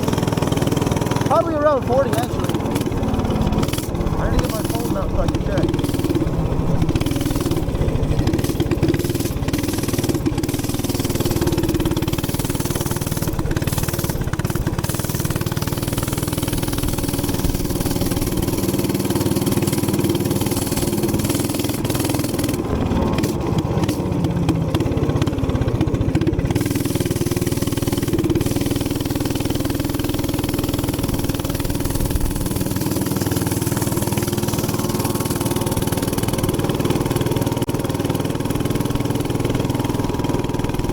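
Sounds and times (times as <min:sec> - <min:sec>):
minibike engine running: 0:00.0 - 0:40.9.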